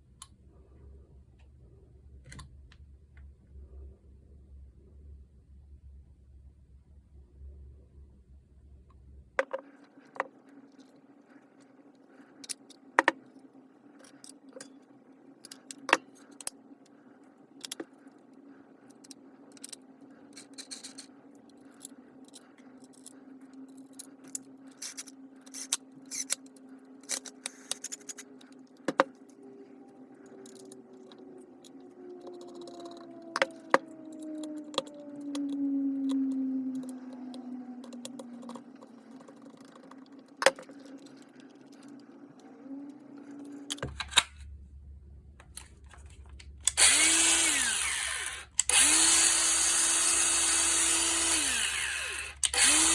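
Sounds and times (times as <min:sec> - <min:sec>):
low hum: 0:26.5 - 0:52.9
faint whine falling in pitch: 0:29.1 - 0:40.3.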